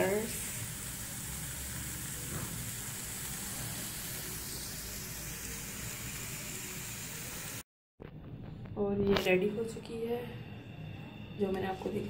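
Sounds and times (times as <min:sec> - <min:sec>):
vegetables sizzling in a frying pan: 0:00.0 - 0:07.6.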